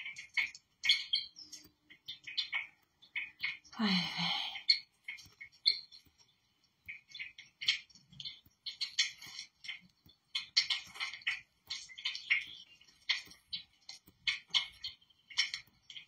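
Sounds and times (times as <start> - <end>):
bird chirps and calls: 0.0 - 6.0.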